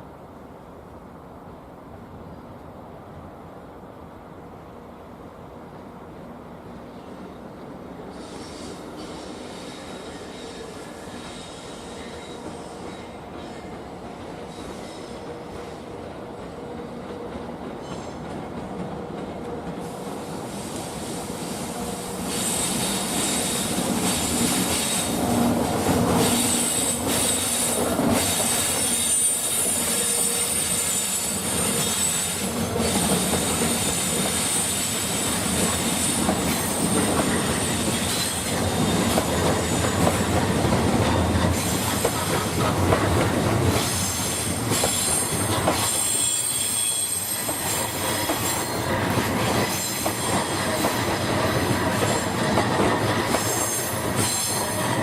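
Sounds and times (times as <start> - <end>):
train rolling on tracks: 0.0 - 55.0
train wheels squealing: 8.1 - 16.0, 17.7 - 18.4, 19.8 - 42.6, 43.6 - 55.0.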